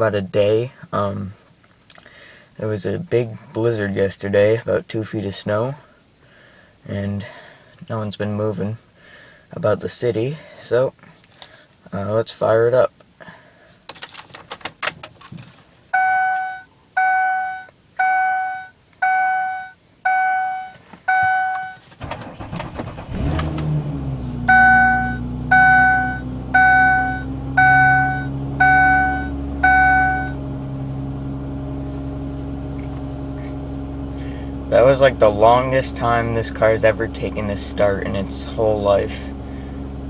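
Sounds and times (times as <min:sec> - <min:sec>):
dashboard warning chime beeping: 0:15.9 - 0:21.8, 0:24.4 - 0:30.4
car engine idling: 0:18.0 - 0:40.0.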